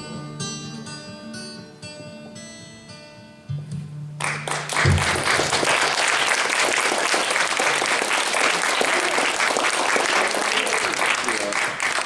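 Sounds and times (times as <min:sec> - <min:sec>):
musical accompaniment notes: 0:00.0 - 0:05.7
audience applause: 0:04.2 - 0:12.0.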